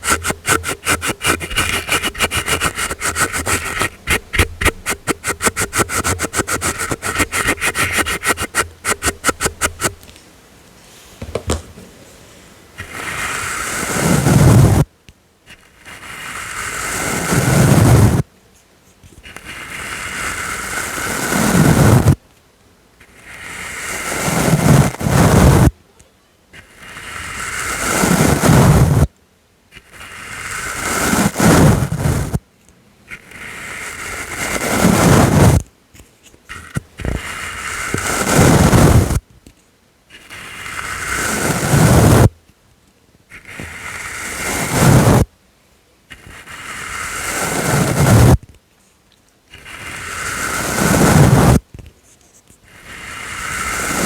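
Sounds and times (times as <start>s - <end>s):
brush sweeping against microphone: 0.0s - 10.1s, 12.8s - 14.8s, 15.5s - 18.2s, 19.2s - 22.2s, 23.0s - 25.7s, 26.6s - 29.1s, 29.8s - 32.4s, 33.1s - 35.7s, 36.3s - 39.2s, 40.1s - 42.3s, 43.3s - 45.3s, 46.1s - 48.4s, 49.5s - 54.0s.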